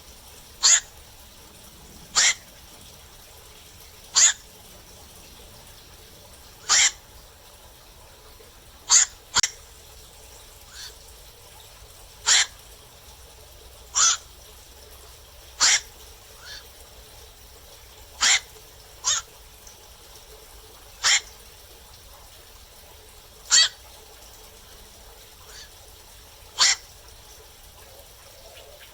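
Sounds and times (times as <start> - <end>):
distant heron calls: 0.0 - 22.0, 22.6 - 28.9
heron harsh calls: 0.4 - 5.8, 6.5 - 7.2, 8.8 - 9.6, 10.7 - 11.0, 12.2 - 12.7, 13.9 - 14.2, 15.6 - 16.7, 18.1 - 19.3, 21.0 - 21.4, 23.5 - 23.8, 26.5 - 27.0.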